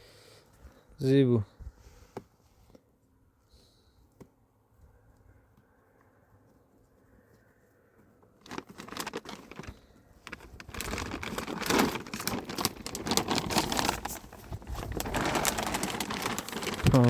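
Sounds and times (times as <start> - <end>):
plastic sheeting rustling: 8.4 - 17.0.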